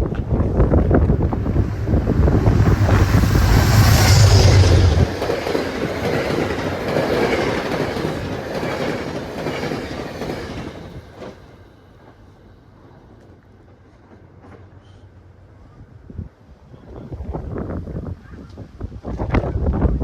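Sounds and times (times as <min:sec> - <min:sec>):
train rumbling past: 0:00.0 - 0:15.6.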